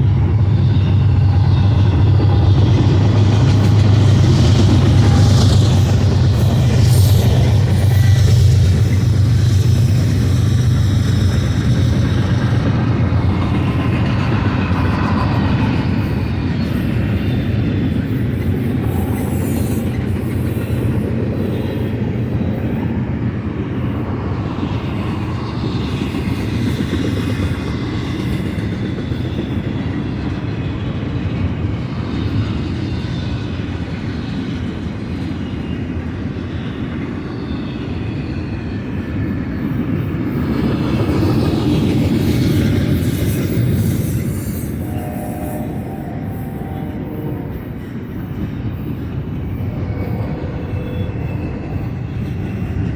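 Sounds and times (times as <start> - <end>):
freight train wheels rumbling: 0.0 - 52.9
wheel squeal: 37.0 - 52.9.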